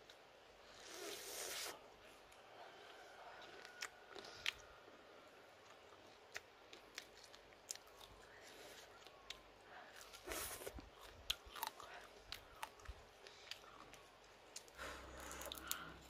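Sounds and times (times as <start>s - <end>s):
quiet chewing: 0.0s - 16.0s
mouth clicks and crunches: 5.6s - 16.0s.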